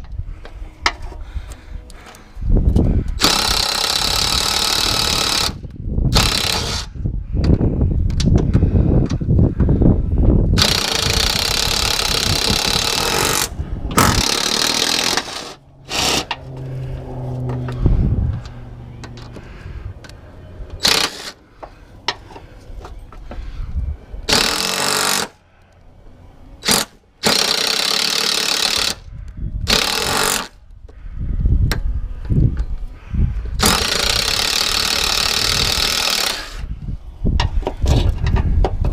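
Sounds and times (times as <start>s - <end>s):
pneumatic tool hammering: 3.2s - 6.9s, 10.6s - 16.4s, 20.8s - 21.4s, 24.3s - 25.4s, 26.6s - 29.0s, 29.7s - 30.5s, 33.6s - 36.7s.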